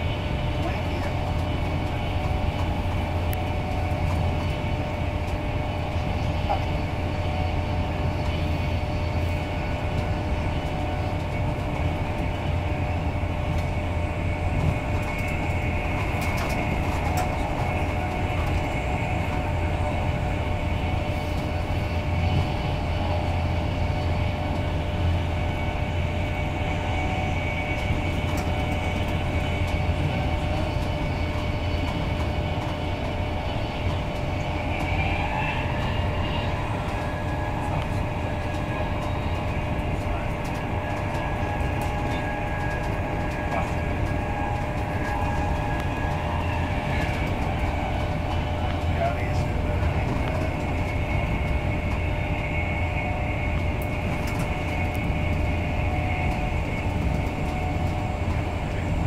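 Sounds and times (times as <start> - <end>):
wheels rumbling on rail: 0.0 - 59.0.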